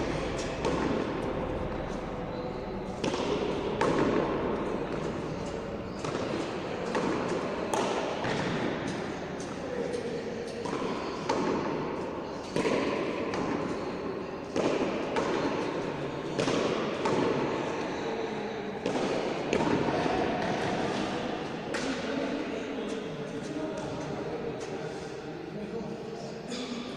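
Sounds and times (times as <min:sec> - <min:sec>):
onlookers chatting: 0:00.0 - 0:13.2.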